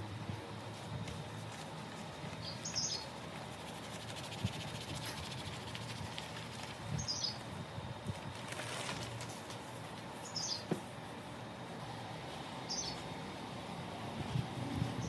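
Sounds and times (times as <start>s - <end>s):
small bird chirping: 2.3s - 3.2s, 6.9s - 7.5s, 10.2s - 10.7s, 12.7s - 13.0s.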